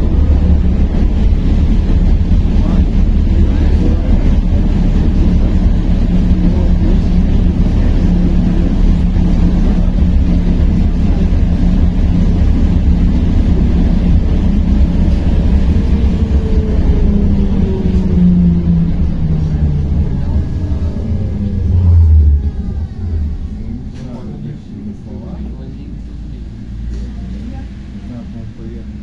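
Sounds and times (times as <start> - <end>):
electric hum: 0.0 - 26.6
tram wheels rumbling: 0.0 - 29.0
whine falling in pitch: 15.8 - 25.1.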